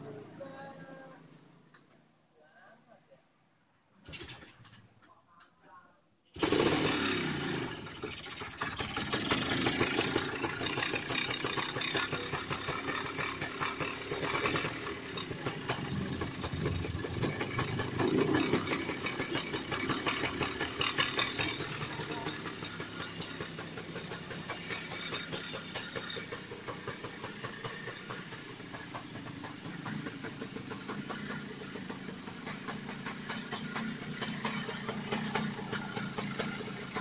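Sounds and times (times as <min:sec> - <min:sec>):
motorcycle engine popping: 0:07.8 - 0:37.0.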